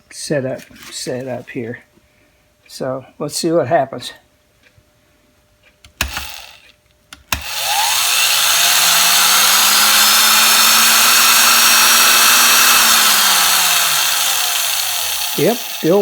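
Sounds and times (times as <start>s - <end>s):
electric drill motor whining: 6.0s - 6.6s, 7.3s - 16.0s.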